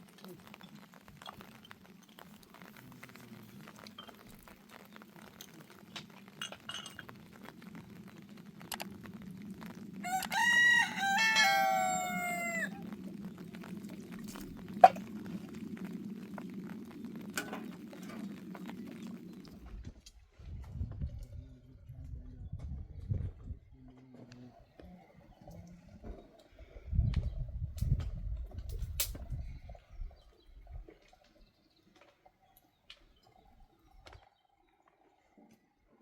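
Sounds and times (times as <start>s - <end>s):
rooster crowing: 10.0s - 12.8s.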